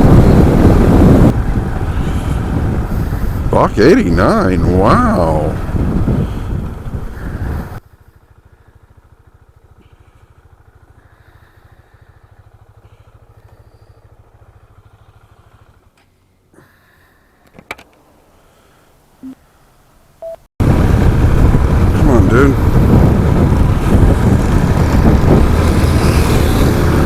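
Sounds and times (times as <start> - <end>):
motorcycle engine idling: 5.5 - 20.3.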